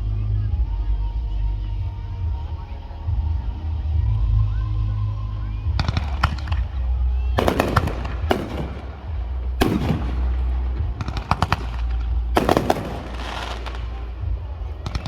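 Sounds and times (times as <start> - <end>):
steady low rumble: 0.0 - 15.0
fireworks bangs and crackles: 5.7 - 15.0.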